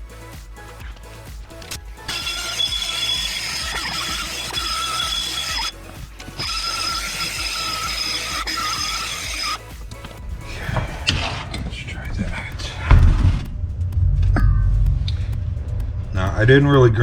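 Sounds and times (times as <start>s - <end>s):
die grinder cutting metal: 1.5s - 10.2s.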